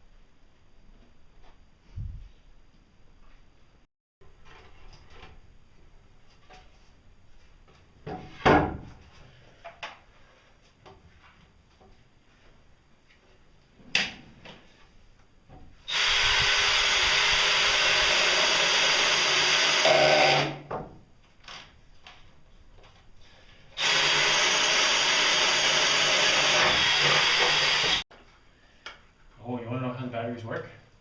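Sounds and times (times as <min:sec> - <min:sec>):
handheld power tool running: 0:15.9 - 0:20.6, 0:23.8 - 0:28.0.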